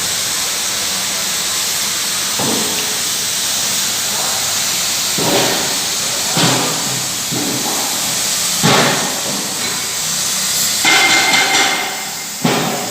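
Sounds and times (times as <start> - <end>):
cutting torch hissing: 0.0 - 12.9.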